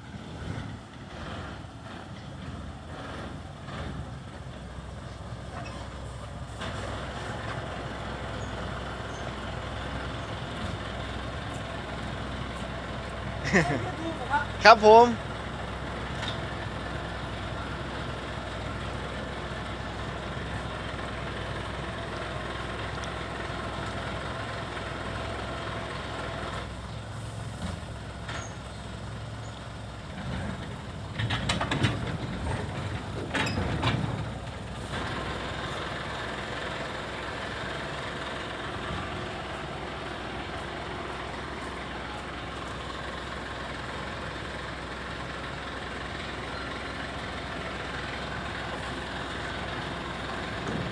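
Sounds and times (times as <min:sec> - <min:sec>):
diesel truck engine running: 0:00.0 - 0:50.9
knocks and clatter: 0:30.2 - 0:34.4.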